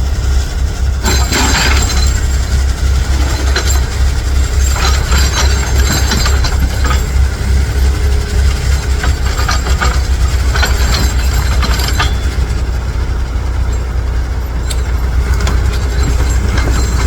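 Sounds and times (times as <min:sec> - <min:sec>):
dump truck engine rumbling: 0:00.0 - 0:17.0
metallic clanks and rattles: 0:01.0 - 0:17.0.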